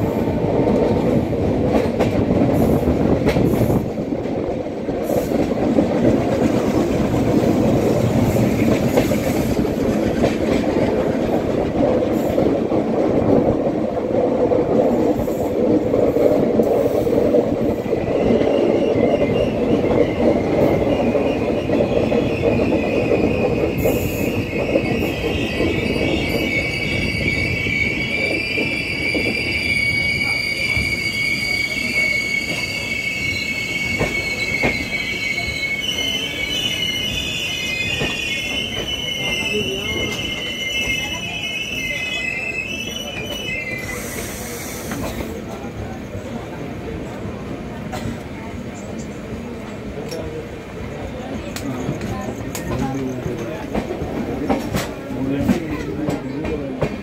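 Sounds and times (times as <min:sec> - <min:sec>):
train wheels rumbling on rails: 0:00.0 - 0:57.0
high wheel squeal: 0:17.9 - 0:45.4.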